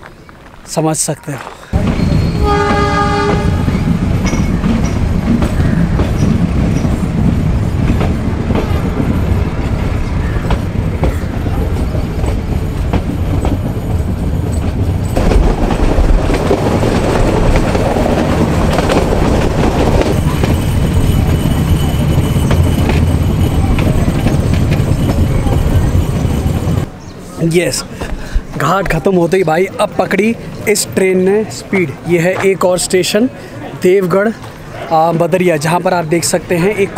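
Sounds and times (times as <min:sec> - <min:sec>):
train coaches rumbling: 0:00.1 - 0:36.9
wheels clattering over rail joints: 0:01.8 - 0:26.9.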